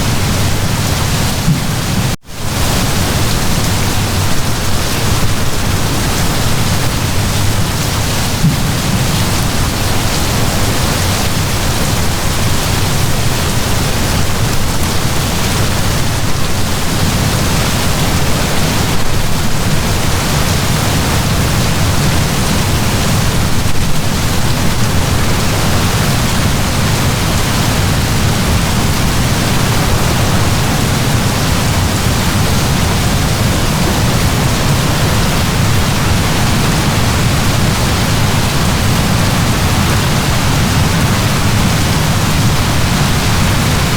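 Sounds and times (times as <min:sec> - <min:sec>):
heavy rain downpour: 0:00.0 - 0:43.9
deep rumble: 0:25.0 - 0:42.4.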